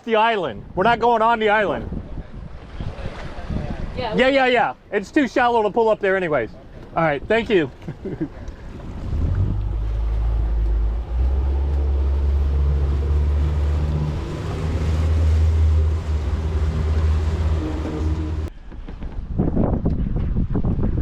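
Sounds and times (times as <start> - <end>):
water noise: 0.0 - 18.5
wind on microphone: 1.6 - 4.2, 8.0 - 21.0
boat motor humming: 7.7 - 18.5.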